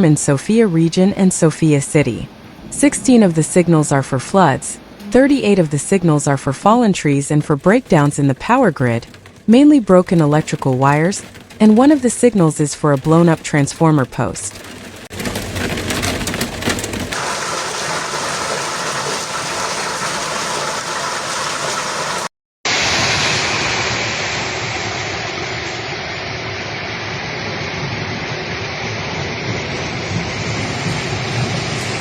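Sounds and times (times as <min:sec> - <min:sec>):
heavy rain and hail: 0:00.0 - 0:24.6
rapid clatter of impacts: 0:07.3 - 0:19.4.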